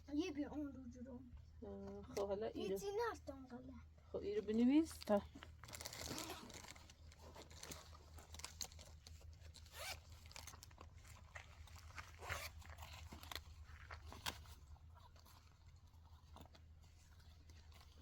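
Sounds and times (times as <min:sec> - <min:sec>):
low steady hum: 0:00.0 - 0:18.0
rustling and scratching: 0:04.2 - 0:18.0.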